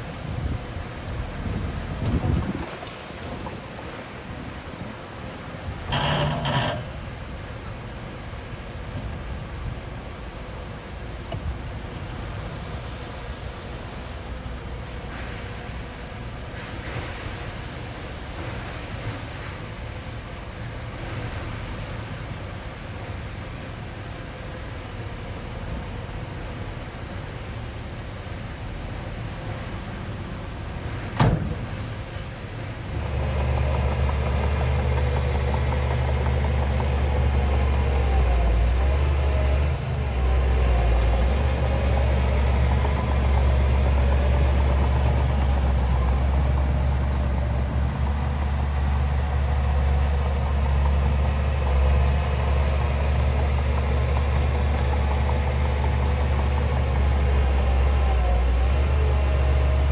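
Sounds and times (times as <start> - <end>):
heavy diesel engine running: 0.0 - 59.9
hiss: 7.2 - 33.2.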